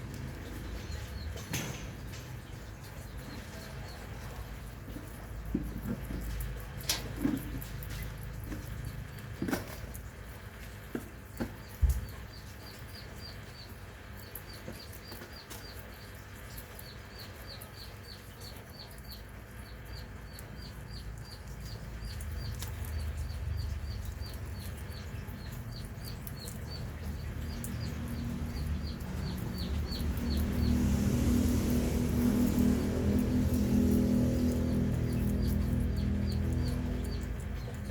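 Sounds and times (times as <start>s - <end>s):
bird chirping: 11.5s - 37.9s.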